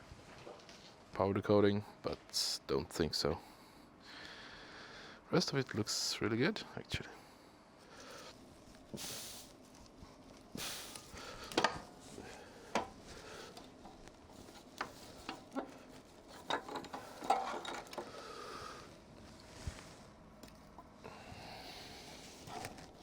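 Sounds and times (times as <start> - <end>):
metal parts and tools clinking: 12.8 - 18.2.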